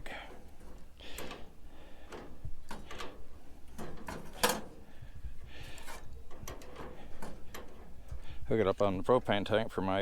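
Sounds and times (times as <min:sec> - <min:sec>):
metallic clicks of hand tools: 0:02.1 - 0:04.7, 0:05.7 - 0:07.9.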